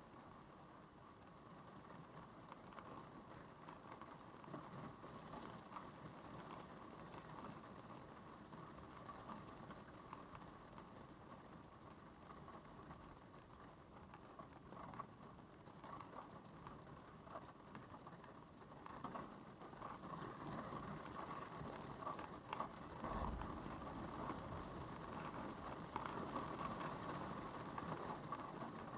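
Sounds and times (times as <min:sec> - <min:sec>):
rain pattering: 0:00.1 - 0:28.9
low rumble: 0:23.0 - 0:25.2
storm wind rushing: 0:23.0 - 0:25.4.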